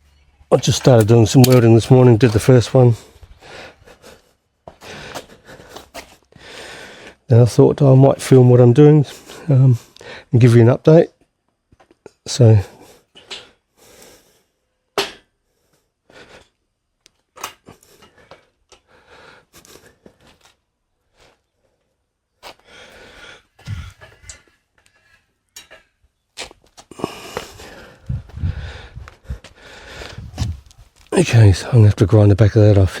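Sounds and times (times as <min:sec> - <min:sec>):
steel parts clicking and scraping: 0:00.6 - 0:02.4, 0:24.0 - 0:26.0.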